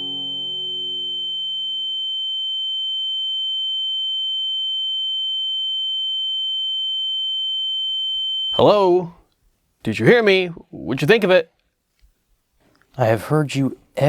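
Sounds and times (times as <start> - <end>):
high-pitched electronic ringing tone: 0.0 - 8.6
person speaking: 8.6 - 9.2, 9.8 - 11.5.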